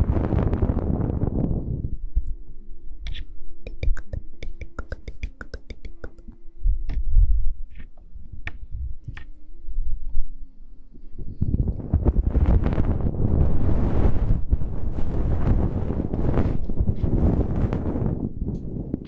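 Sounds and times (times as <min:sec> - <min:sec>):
faint steady hum: 0:00.0 - 0:19.0
sharp little clicks: 0:03.1 - 0:07.0
muffled low thumps: 0:03.7 - 0:10.3.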